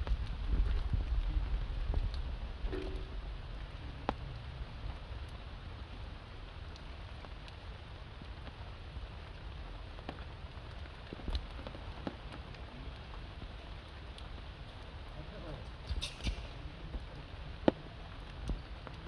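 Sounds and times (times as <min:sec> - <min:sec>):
rain pattering on stone and leaves: 0:00.0 - 0:19.0.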